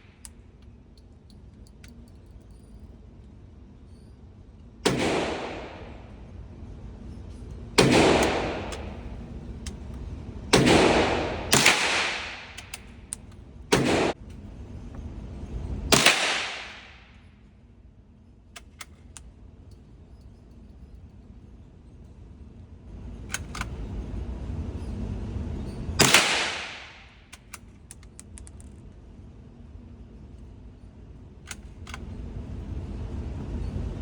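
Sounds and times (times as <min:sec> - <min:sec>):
rifle shots with echo: 0:04.8 - 0:06.2, 0:07.8 - 0:09.2, 0:10.5 - 0:12.8, 0:13.7 - 0:14.2, 0:15.9 - 0:17.0, 0:26.0 - 0:27.1
rifle bolt clicks: 0:08.2 - 0:09.0, 0:11.6 - 0:13.4, 0:23.3 - 0:23.8, 0:27.3 - 0:28.8, 0:31.5 - 0:32.0.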